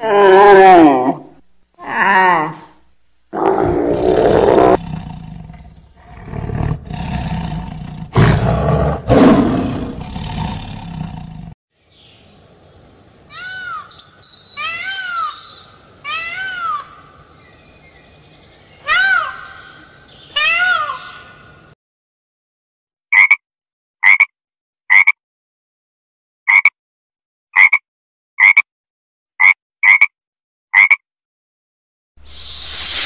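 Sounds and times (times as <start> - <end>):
tiger roaring: 3.3 - 11.6.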